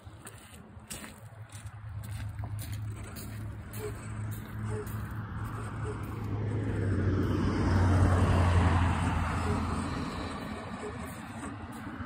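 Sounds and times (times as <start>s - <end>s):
small gasoline engine revving: 3.8s - 12.0s.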